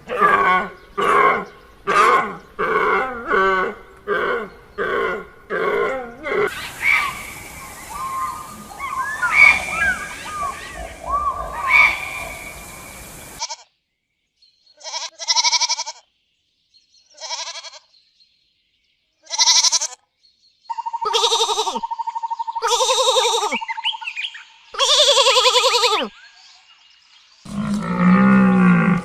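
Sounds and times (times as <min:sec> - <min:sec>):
bird chirps: 0:06.5 - 0:13.4, 0:20.2 - 0:22.8, 0:23.5 - 0:24.8
steady rushing hiss: 0:06.5 - 0:13.5
goats bleating: 0:14.8 - 0:16.0, 0:17.2 - 0:17.8, 0:19.3 - 0:20.0, 0:21.1 - 0:21.8.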